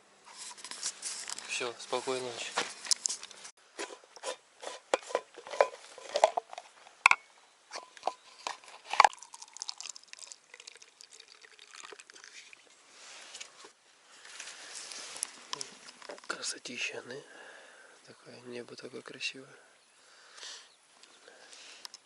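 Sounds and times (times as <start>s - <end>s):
faint steady hiss: 0.0s - 22.0s
rustling tent fabric and bedding: 12.8s - 15.9s.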